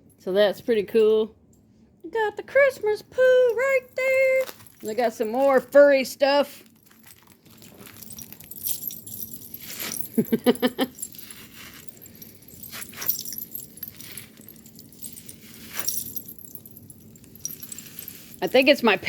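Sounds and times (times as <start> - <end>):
packing rustling: 4.1 - 18.7
light metallic clinks: 6.7 - 19.0.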